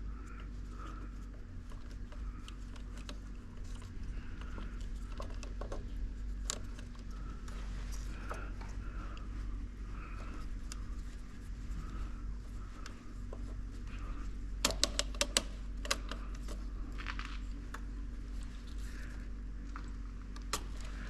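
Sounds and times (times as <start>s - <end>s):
steady low hum: 0.0s - 21.0s
sharp clicks: 14.6s - 16.4s.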